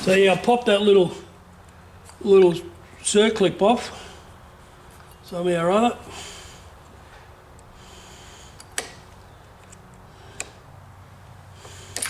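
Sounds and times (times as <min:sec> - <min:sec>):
light sharp metal clicks: 0:08.6 - 0:10.6.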